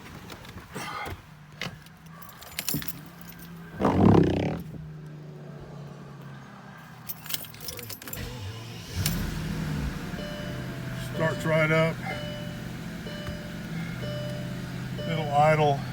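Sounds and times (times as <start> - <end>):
car engine starting: 1.2 - 15.9
keys jangling: 2.1 - 3.6, 7.1 - 8.3
car engine idling: 8.2 - 15.9.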